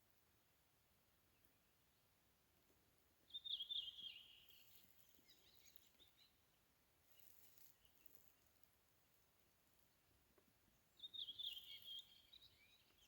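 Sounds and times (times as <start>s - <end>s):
faint bird chirps: 3.3s - 8.7s, 10.7s - 13.0s.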